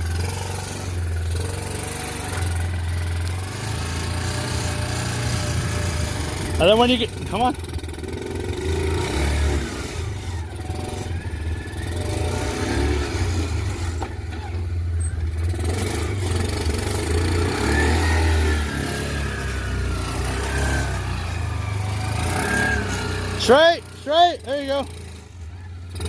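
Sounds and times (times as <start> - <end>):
small engine droning: 0.0 - 26.0.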